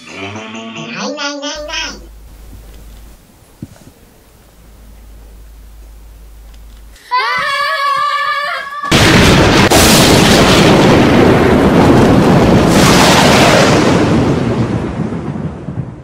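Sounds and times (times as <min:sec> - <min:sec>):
child crying out high note: 0:07.0 - 0:09.0
explosion-like rumble: 0:08.9 - 0:16.0.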